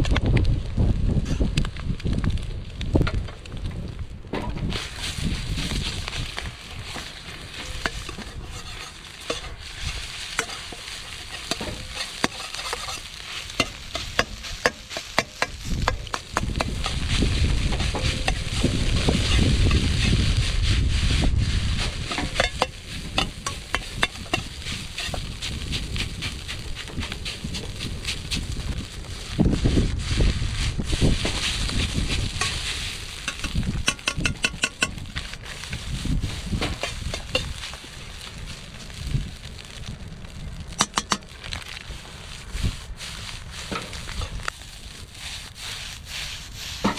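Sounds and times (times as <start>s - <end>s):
food sizzling in a wok: 4.7s - 46.9s
metal utensil clacking on wok: 33.2s - 35.0s.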